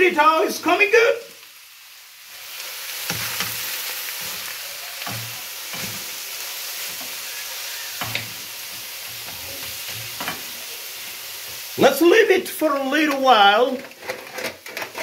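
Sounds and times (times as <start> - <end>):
meat sizzling in a pan: 0.0 - 14.0.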